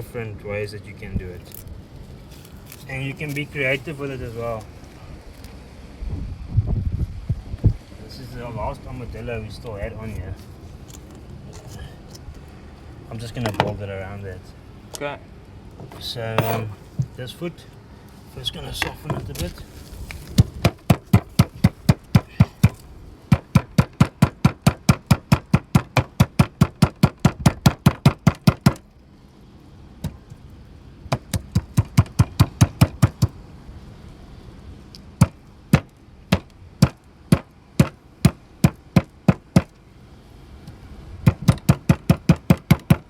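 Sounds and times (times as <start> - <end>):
rapid knocking blows: 20.4 - 28.8, 31.1 - 33.4, 35.2 - 39.7, 41.2 - 43.0.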